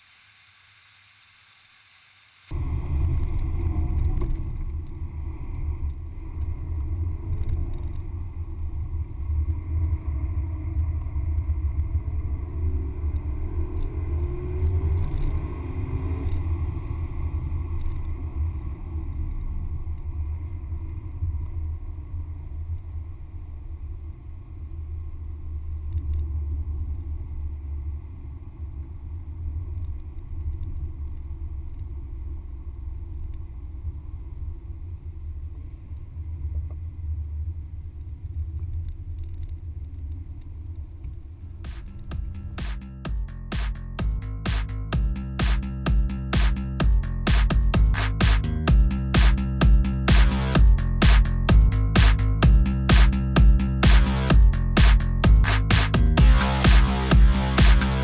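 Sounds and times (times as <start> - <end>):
road and wind rumble: 2.6 - 25.1
car engine at speed: 5.8 - 18.1, 41.5 - 58.0.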